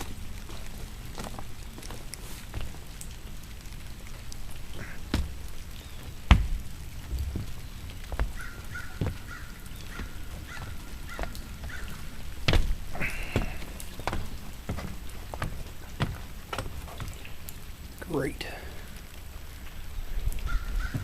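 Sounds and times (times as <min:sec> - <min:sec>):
bird calling: 0:04.6 - 0:17.7, 0:19.8 - 0:21.0
knocks and thumps: 0:04.8 - 0:17.2.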